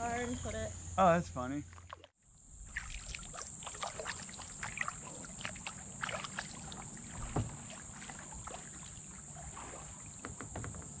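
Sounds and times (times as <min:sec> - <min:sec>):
water splashes and drips: 0:01.7 - 0:10.8
kayak paddle strokes in water: 0:01.7 - 0:11.0
thump: 0:07.2 - 0:07.6.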